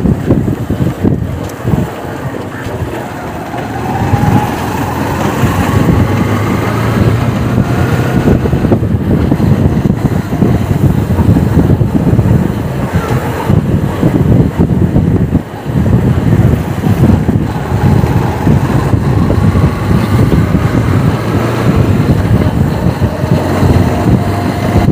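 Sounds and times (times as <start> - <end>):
motorcycle engine whine: 0.0 - 24.9
wind on microphone: 0.0 - 24.9.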